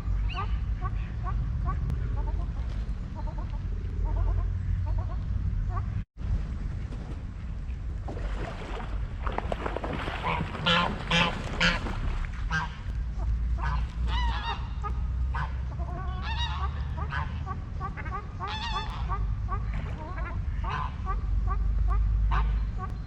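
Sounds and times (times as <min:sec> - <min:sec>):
steady low rumble: 0:00.0 - 0:23.0
waterfowl honking: 0:10.1 - 0:22.9.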